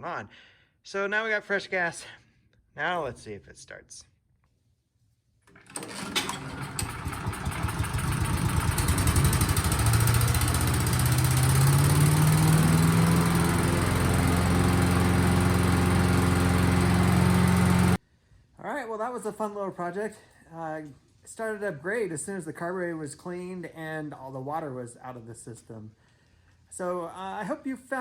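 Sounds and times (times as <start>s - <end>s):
chipper shredder engine starting: 5.5s - 18.0s.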